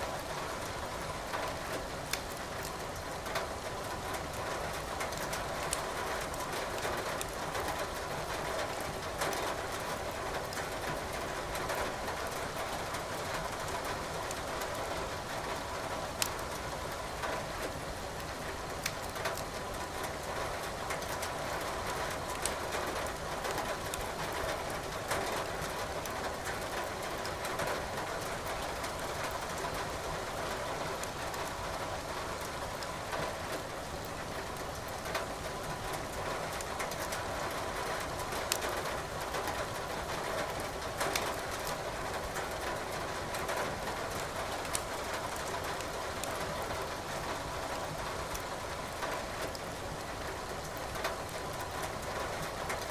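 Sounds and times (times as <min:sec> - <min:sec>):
rain pattering: 0:00.0 - 0:52.9
logs crackling in fireplace: 0:02.1 - 0:02.7.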